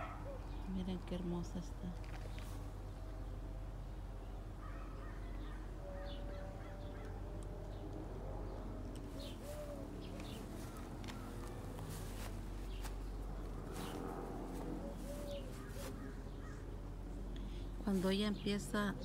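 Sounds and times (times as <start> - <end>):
birds calling: 0.0 - 19.0
steady low rumble: 7.2 - 19.0.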